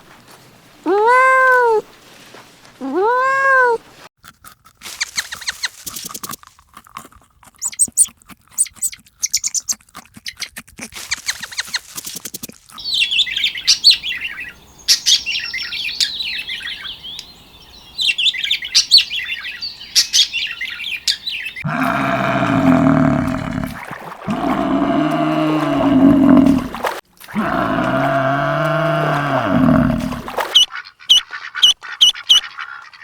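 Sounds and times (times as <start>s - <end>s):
small birds chirping: 7.6s - 10.4s, 12.7s - 33.0s
cow mooing: 21.6s - 30.4s.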